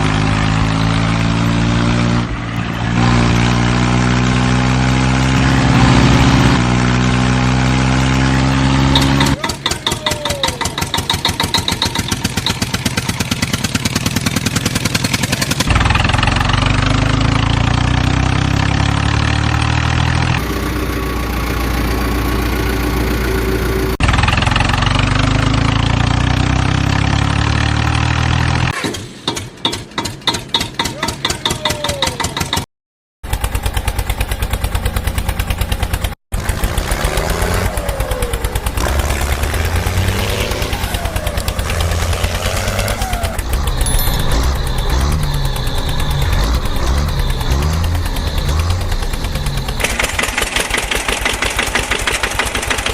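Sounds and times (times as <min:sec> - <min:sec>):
heavy engine idling and revving: 0:00.0 - 0:52.9.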